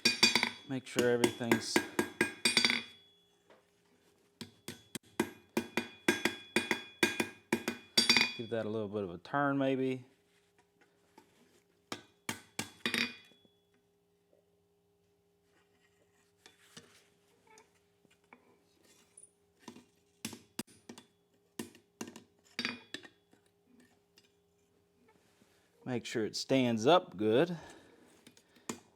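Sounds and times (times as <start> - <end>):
metal fork clinking: 0.0 - 3.2, 7.8 - 8.5.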